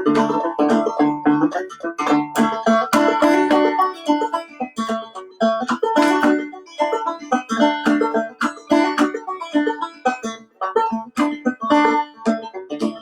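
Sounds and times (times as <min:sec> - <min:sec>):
banjo plucked clawhammer style: 0:00.0 - 0:13.0.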